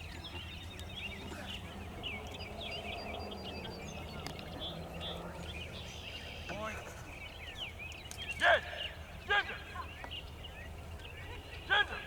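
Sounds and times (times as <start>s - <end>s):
small birds chirping and singing: 0.0s - 12.0s.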